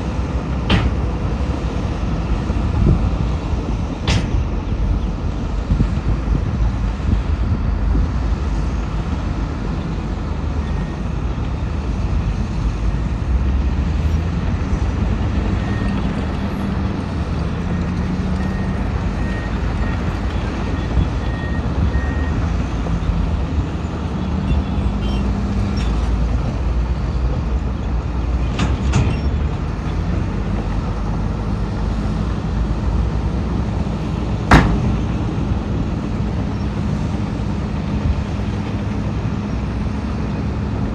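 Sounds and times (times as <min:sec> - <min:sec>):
diesel machinery running: 0:00.0 - 0:40.9
sharp loud knock: 0:34.5 - 0:35.0.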